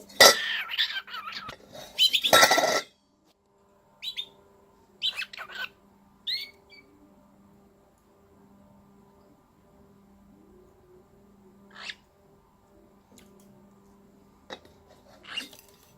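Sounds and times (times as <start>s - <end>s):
cockatiel harsh call: 0.2s - 2.6s, 5.0s - 6.9s, 11.7s - 12.0s, 15.2s - 15.6s.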